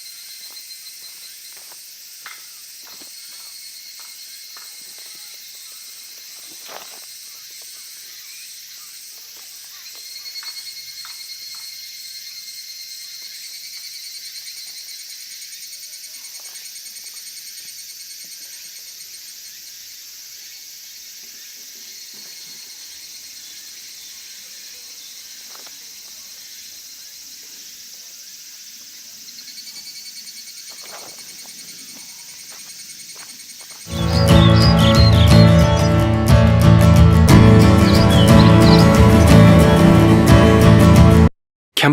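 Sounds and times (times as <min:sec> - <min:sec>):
insects trilling: 0:00.0 - 0:36.0, 0:37.8 - 0:39.9
loud music: 0:33.9 - 0:41.3.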